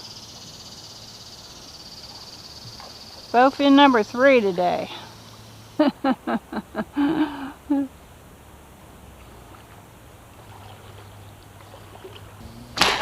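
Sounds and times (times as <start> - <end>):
faint hum: 11.7 - 13.0.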